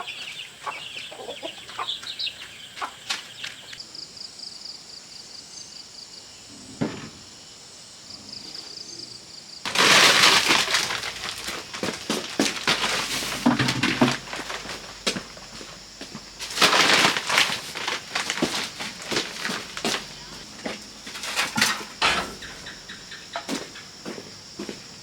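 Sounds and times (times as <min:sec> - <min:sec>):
loud crackling and snapping: 0:09.7 - 0:22.2.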